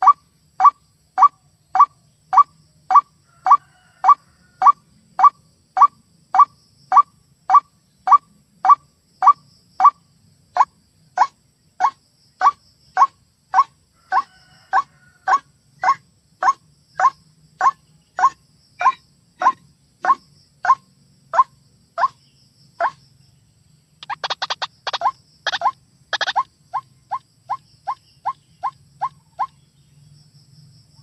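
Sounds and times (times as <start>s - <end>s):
recorded waterhen rising call: 2.9s - 5.3s, 10.6s - 22.2s.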